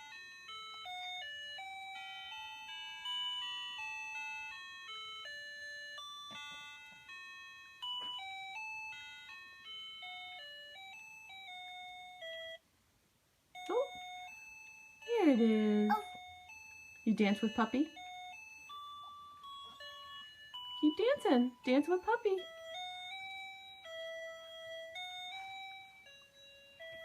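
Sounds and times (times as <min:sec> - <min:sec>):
toy playing beeping lullaby: 0:00.0 - 0:12.7, 0:13.5 - 0:27.0.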